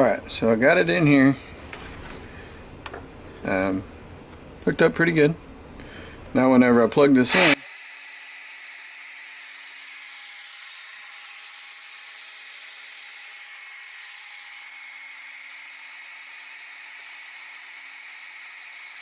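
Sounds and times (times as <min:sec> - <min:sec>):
electric motor and propeller whirring: 0:07.3 - 0:19.0.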